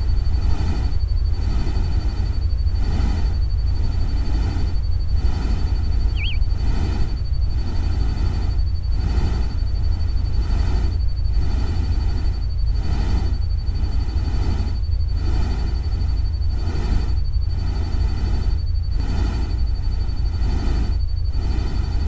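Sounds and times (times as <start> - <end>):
deep steady rumble: 5.2 - 6.8
thin high whine: 6.0 - 6.7.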